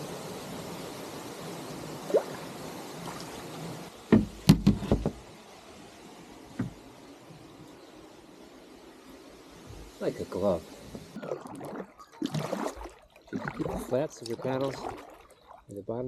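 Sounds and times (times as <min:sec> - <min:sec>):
water washing: 0:00.0 - 0:15.9
knocks against a kayak: 0:04.1 - 0:05.2, 0:06.6 - 0:06.8.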